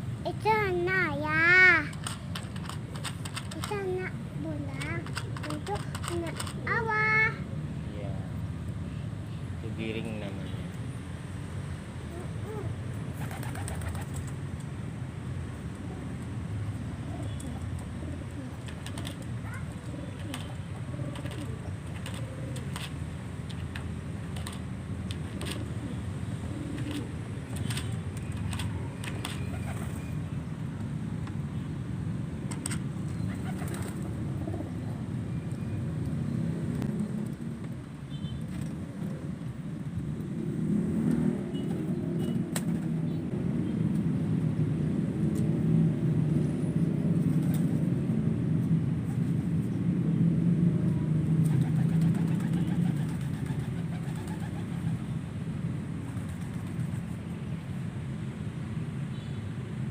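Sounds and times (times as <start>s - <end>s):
pigeons cooing: 12.1s - 14.2s, 17.0s - 23.0s, 25.2s - 27.8s, 33.2s - 35.0s, 51.3s - 54.9s
wings flapping: 13.1s - 14.4s, 18.3s - 23.0s, 26.7s - 30.0s, 33.1s - 34.4s, 51.3s - 55.0s.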